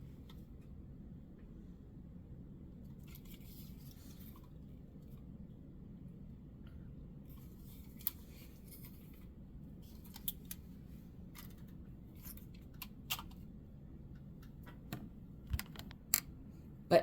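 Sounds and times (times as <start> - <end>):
faint low hum: 0.0 - 17.0
plastic model cars clicking: 11.4 - 13.4.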